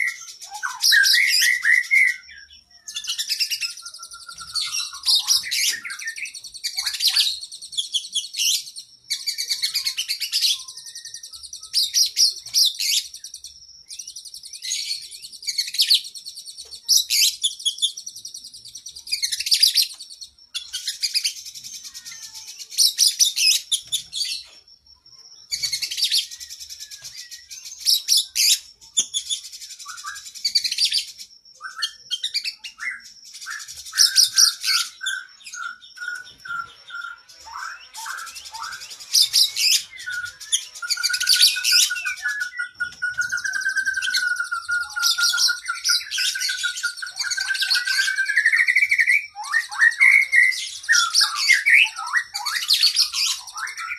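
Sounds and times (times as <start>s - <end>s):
bird singing high-pitched phrases: 0.0s - 53.9s.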